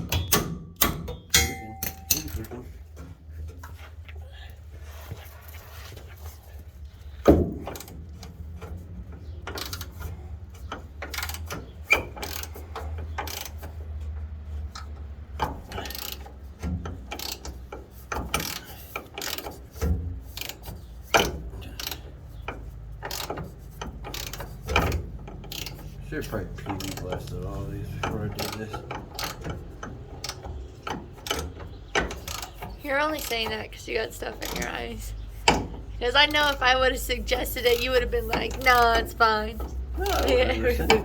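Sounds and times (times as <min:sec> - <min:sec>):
metallic knocks: 0:00.0 - 0:03.1, 0:21.1 - 0:41.0.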